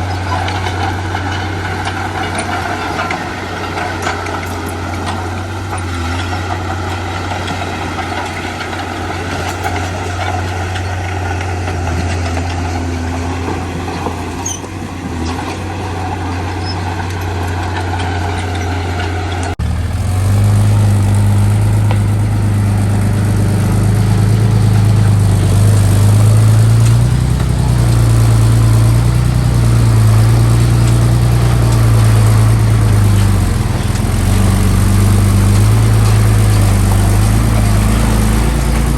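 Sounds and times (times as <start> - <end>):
deep loud engine note: 0.0 - 38.9
heavy diesel engine running: 0.0 - 38.9.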